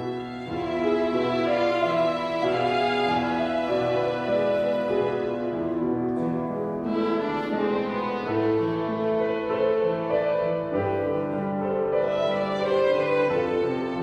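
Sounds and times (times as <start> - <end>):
piano chords: 0.0 - 14.0
violin ensemble playing: 0.0 - 14.0.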